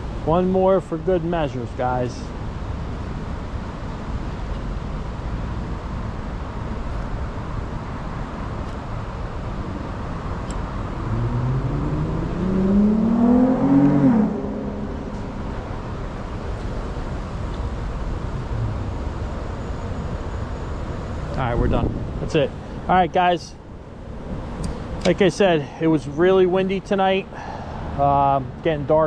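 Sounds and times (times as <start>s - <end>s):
engine passing by: 7.8s - 29.0s
wind rumbling on microphone: 9.6s - 22.9s.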